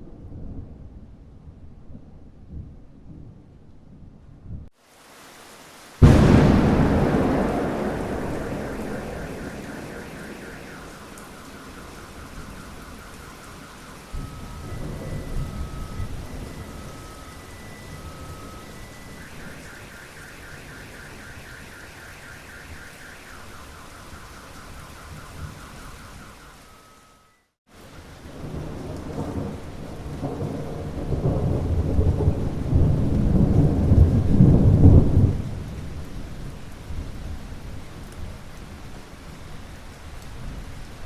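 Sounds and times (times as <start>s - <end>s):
steady rain: 4.7s - 41.0s
long roll of thunder: 6.0s - 26.4s, 28.1s - 37.6s
rapidly pulsing high tone: 6.1s - 27.4s.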